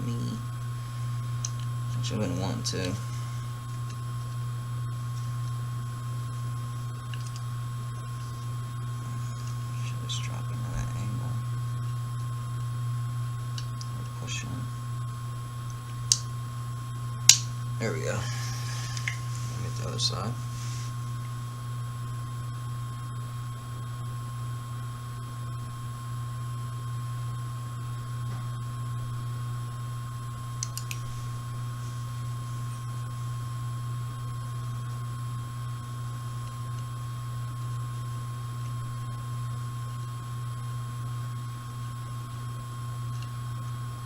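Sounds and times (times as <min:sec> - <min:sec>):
washing machine hum and whine: 0:00.0 - 0:44.0
faint clicks: 0:30.6 - 0:31.0.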